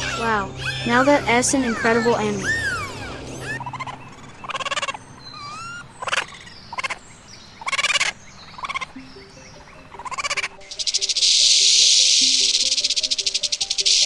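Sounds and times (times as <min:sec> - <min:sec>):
animal rattling calls: 0:00.0 - 0:07.0
thin chirps: 0:08.5 - 0:14.0.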